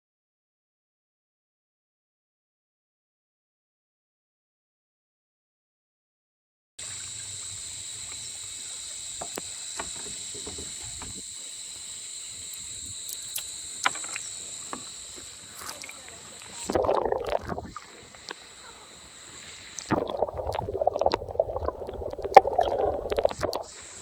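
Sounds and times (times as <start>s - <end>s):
high-pitched insect drone: 6.8s - 24.0s
kayak knocks: 9.2s - 11.2s
water splashing: 12.4s - 24.0s.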